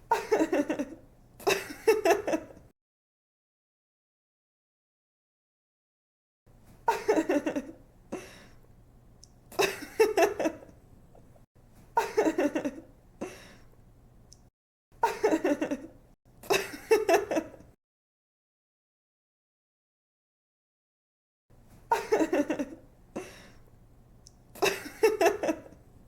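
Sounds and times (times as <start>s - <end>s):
girl giggling: 0.1s - 2.6s, 15.0s - 15.9s, 21.9s - 23.3s, 24.6s - 25.8s
faint steady hum: 6.5s - 17.8s, 21.5s - 26.0s.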